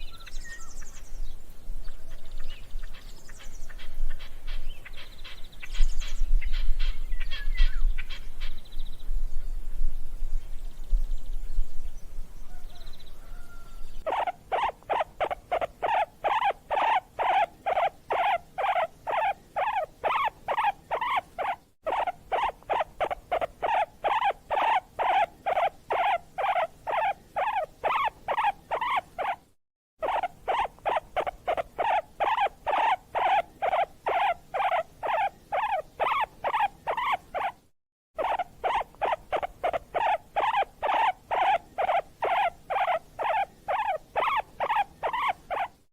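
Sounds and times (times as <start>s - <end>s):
animal squeaking: 12.6s - 45.9s.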